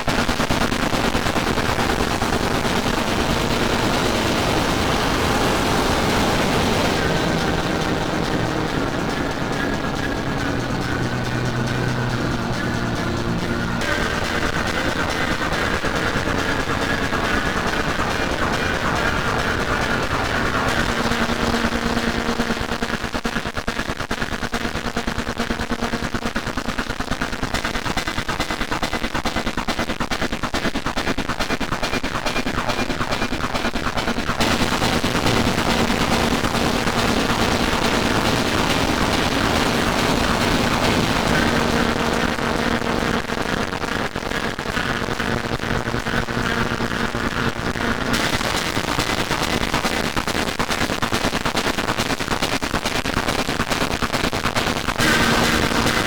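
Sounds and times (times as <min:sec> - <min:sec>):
steady held tones: 0:02.6 - 0:23.0, 0:31.4 - 0:50.4, 0:55.0 - 0:56.0
dense layered electronic music: 0:03.9 - 0:23.1, 0:31.8 - 0:49.7, 0:55.0 - 0:56.0.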